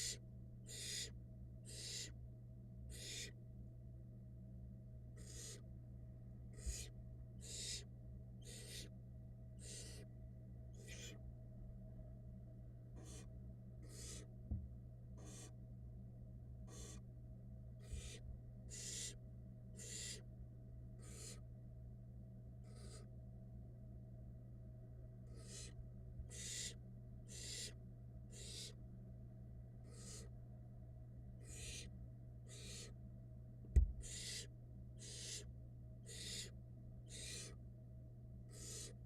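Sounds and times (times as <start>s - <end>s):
owl nestlings hissing: 0.0s - 2.2s, 2.9s - 3.4s, 5.2s - 5.6s, 6.5s - 8.9s, 9.6s - 10.1s, 10.8s - 11.2s, 13.0s - 14.3s, 15.2s - 15.6s, 16.7s - 17.0s, 17.8s - 20.3s, 21.0s - 21.4s, 22.6s - 23.1s, 25.3s - 28.8s, 29.8s - 30.3s, 31.4s - 31.9s, 32.5s - 33.0s, 34.0s - 37.6s, 38.5s - 39.0s
steady low hum: 0.0s - 39.0s.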